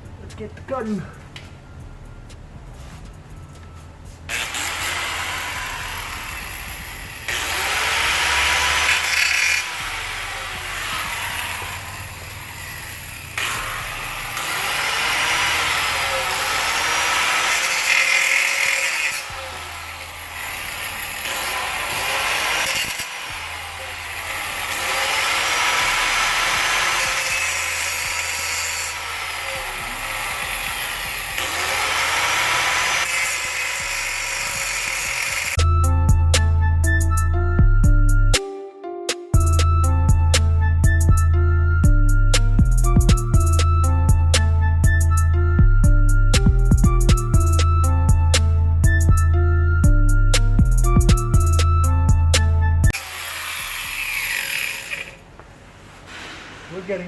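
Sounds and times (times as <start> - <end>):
steel exhaust pipe being cut: 4.3 - 35.6, 52.9 - 55.3.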